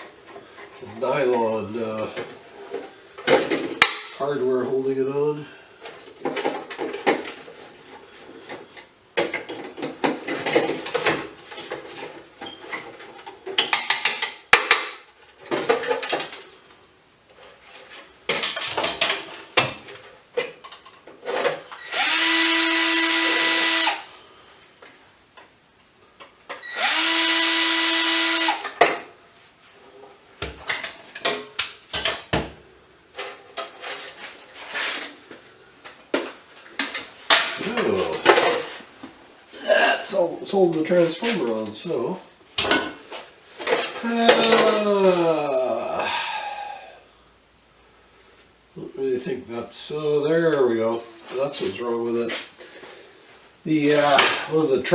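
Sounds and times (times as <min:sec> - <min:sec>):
parts clattering and clicking: 0:05.8 - 0:16.5, 0:17.7 - 0:21.8, 0:30.4 - 0:32.4
power drill motor whining: 0:21.8 - 0:24.1, 0:26.6 - 0:28.8.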